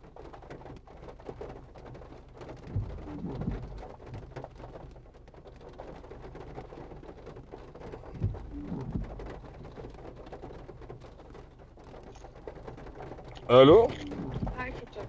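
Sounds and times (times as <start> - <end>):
rain pattering: 0.0 - 15.0
low thump: 2.7 - 3.7, 8.2 - 9.2.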